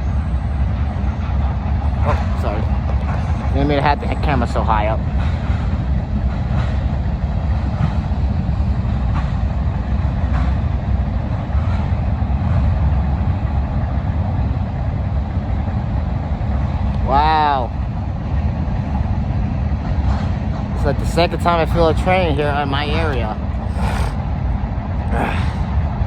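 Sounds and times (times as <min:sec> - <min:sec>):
freight train cars rumbling: 0:00.0 - 0:26.0.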